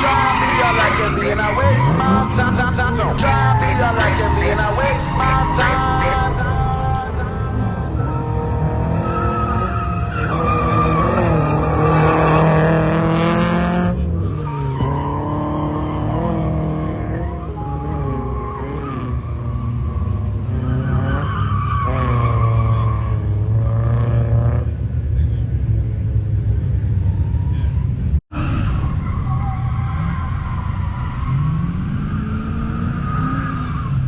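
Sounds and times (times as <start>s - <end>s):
car engine revving hard: 0.0s - 21.2s
tyres skidding: 0.0s - 34.0s.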